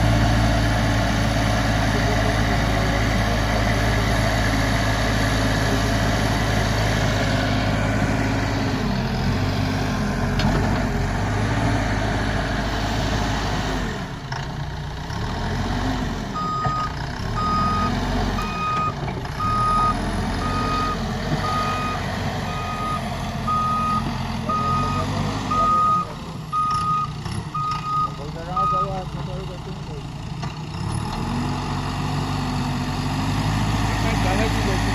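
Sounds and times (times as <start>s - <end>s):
diesel engine running: 0.0s - 34.9s
reversing alarm beeping: 16.4s - 28.9s.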